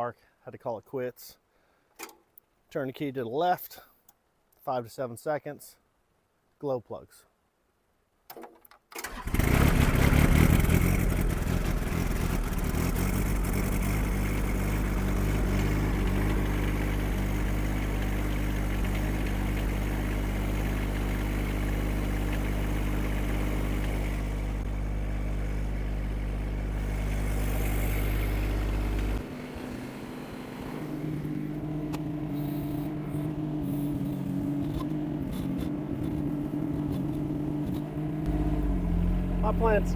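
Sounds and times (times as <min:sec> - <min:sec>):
diesel engine starting and idling: 0:09.0 - 0:39.9.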